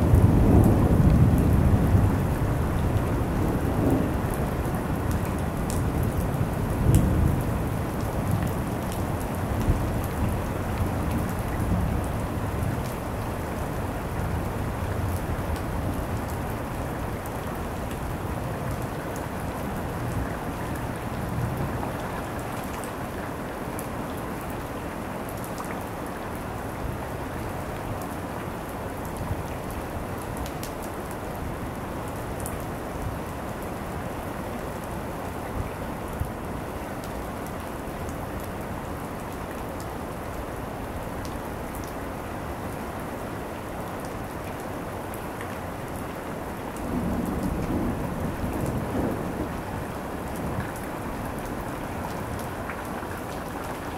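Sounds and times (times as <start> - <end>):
heavy rain: 0.0 - 53.9
thunder rumble: 46.8 - 52.0.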